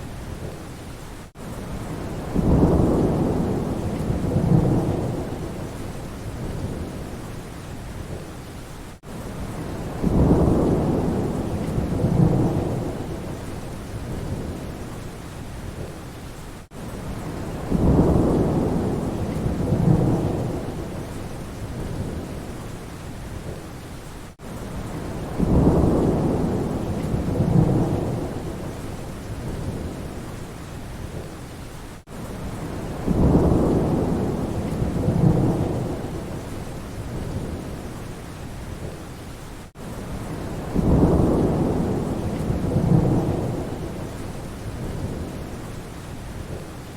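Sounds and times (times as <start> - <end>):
steady rain: 0.0 - 46.9
thunder rolling: 40.1 - 45.3.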